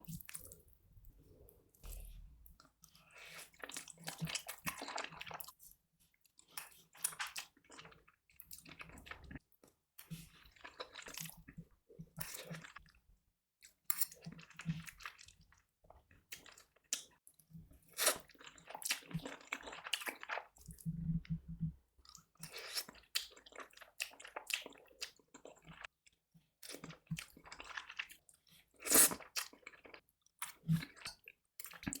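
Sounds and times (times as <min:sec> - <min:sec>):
person chewing noodles: 0:01.8 - 0:05.7, 0:17.9 - 0:25.9, 0:26.6 - 0:32.0.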